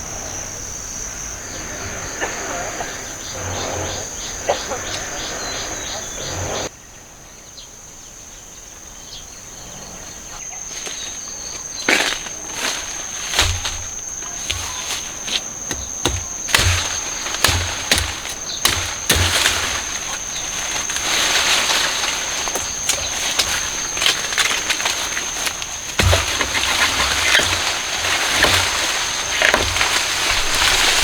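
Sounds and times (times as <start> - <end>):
insects trilling: 0.0 - 31.0
sharp knocks and cracks: 11.8 - 31.0.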